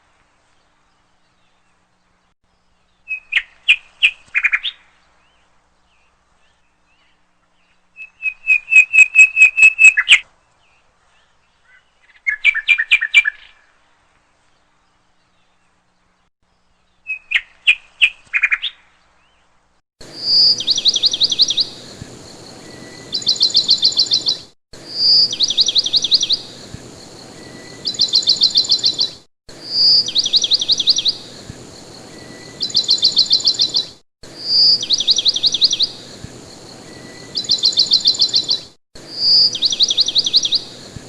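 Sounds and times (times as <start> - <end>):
bird chirping rapidly: 8.0 - 10.2, 20.0 - 41.0.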